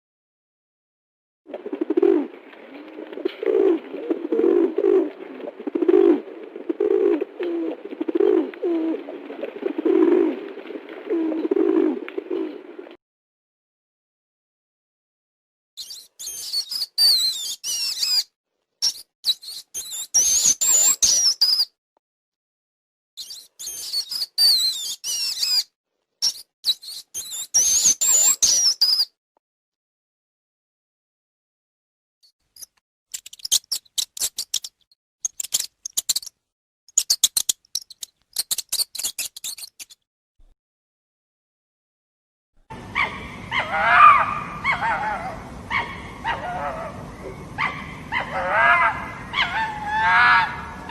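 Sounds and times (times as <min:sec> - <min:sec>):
small animal squeaking: 0:32.6 - 0:36.3, 0:36.9 - 0:40.0
animal clicking chirps: 0:36.9 - 0:40.0.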